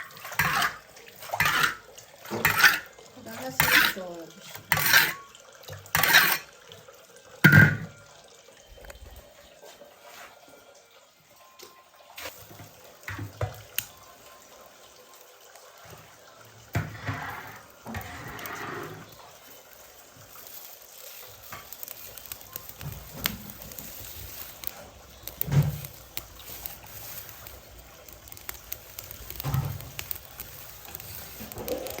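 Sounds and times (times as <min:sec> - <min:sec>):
water splashing and running: 0:00.0 - 0:08.0, 0:15.3 - 0:32.0
kitchen utensils knocking: 0:07.4 - 0:07.9.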